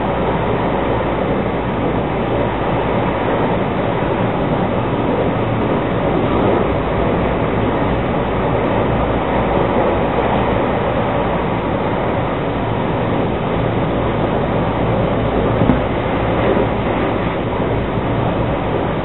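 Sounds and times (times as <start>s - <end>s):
train wheels rumbling on rail: 14.6s - 18.5s.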